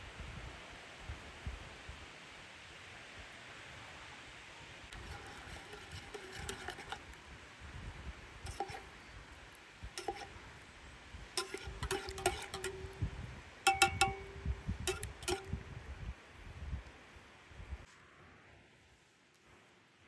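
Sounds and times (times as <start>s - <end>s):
cookware clinking: 5.0s - 7.0s, 8.5s - 9.0s, 10.0s - 10.3s, 11.4s - 13.1s, 13.7s - 15.6s.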